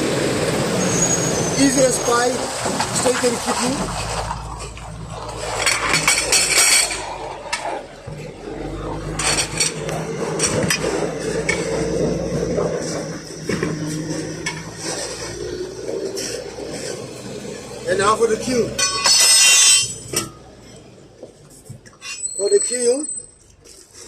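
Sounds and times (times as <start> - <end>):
tyre tools clanking on wheel rim: 2.7 - 8.4, 18.5 - 20.4.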